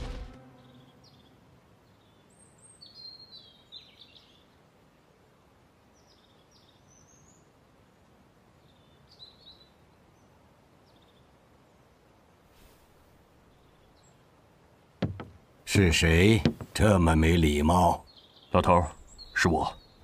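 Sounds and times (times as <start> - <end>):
music: 0.0 - 1.0
birds chirping: 0.0 - 4.6, 13.2 - 20.0
background hiss: 0.0 - 20.0.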